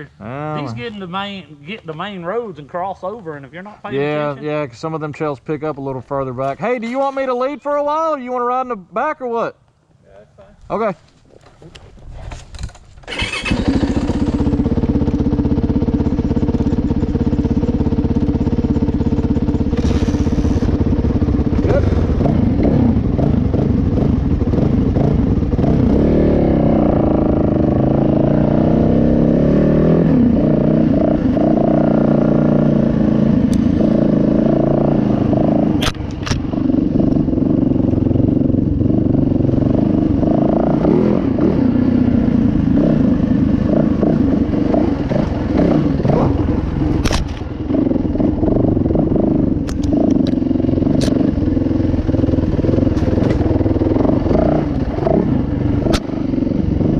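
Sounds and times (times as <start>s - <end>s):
dirt bike engine revving: 13.1s - 56.9s
sharp clicks or knocks: 35.8s - 36.5s, 47.0s - 47.5s, 49.6s - 50.4s.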